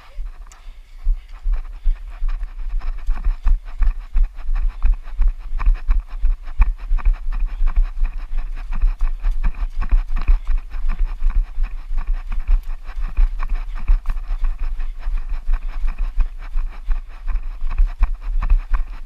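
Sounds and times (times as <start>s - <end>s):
wind buffeting microphone: 0.0s - 19.0s
running footsteps thudding: 0.3s - 19.0s.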